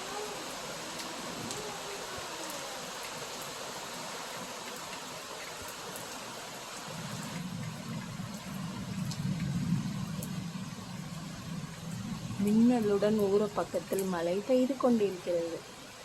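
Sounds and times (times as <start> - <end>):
heavy rain: 0.0 - 16.0
low thunder rumble: 7.4 - 14.3.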